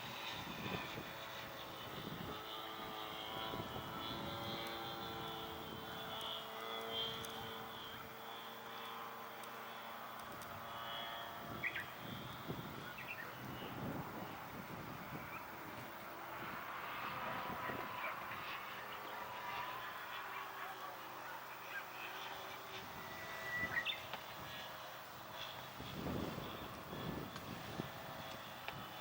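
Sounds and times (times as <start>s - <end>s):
wind buffeting microphone: 0.0s - 8.2s, 10.3s - 18.7s, 25.4s - 29.0s
model airplane motor droning: 0.0s - 29.0s.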